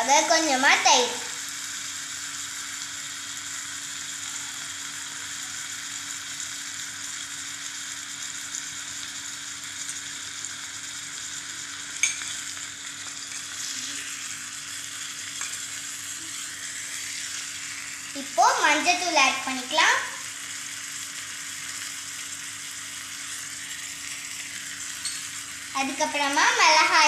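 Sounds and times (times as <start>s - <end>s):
food sizzling in oil: 0.0s - 27.0s.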